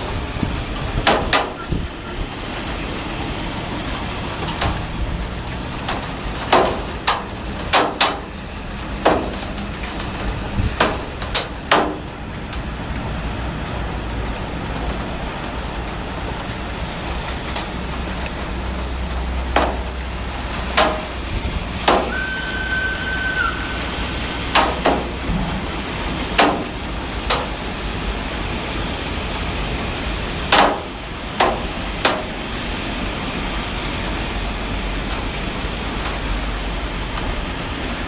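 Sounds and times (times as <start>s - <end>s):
heavy rain falling: 0.0s - 38.0s
sharp knocks: 6.5s - 8.3s, 9.0s - 9.6s, 10.7s - 12.1s, 19.5s - 20.0s, 20.7s - 22.2s, 24.4s - 27.6s, 30.5s - 32.3s.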